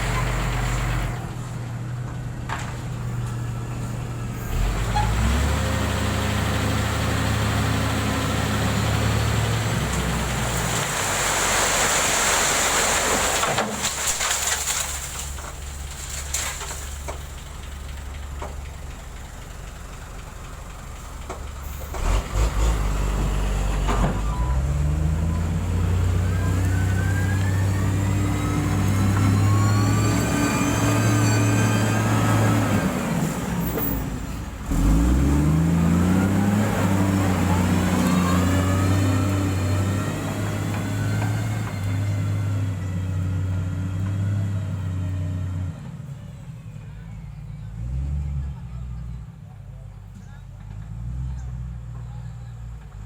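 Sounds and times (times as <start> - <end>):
heavy diesel engine working: 0.0 - 13.9, 15.1 - 53.0.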